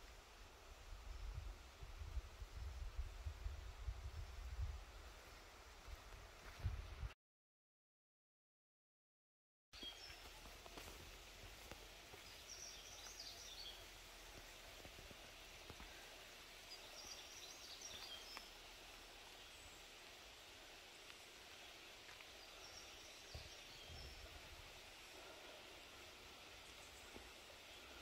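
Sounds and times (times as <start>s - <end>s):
forest ambience: 0.0s - 7.1s, 9.8s - 28.0s
bird singing: 12.2s - 13.9s, 16.7s - 18.6s, 21.0s - 28.0s.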